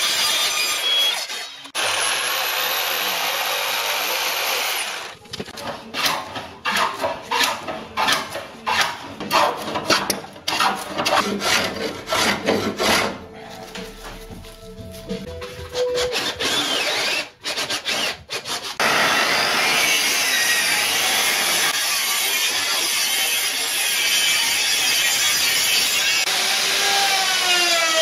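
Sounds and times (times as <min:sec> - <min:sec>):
electric mitre saw cutting wood: 0:00.0 - 0:05.2, 0:16.0 - 0:28.0
hand plane shaving a board: 0:05.6 - 0:13.9, 0:15.7 - 0:18.9.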